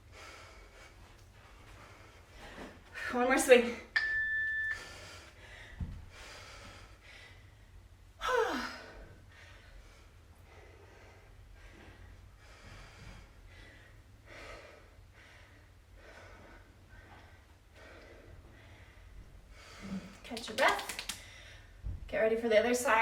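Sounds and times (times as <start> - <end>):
woman breathing hard: 0.0 - 3.1, 4.6 - 20.3
woman sighing: 8.2 - 9.0.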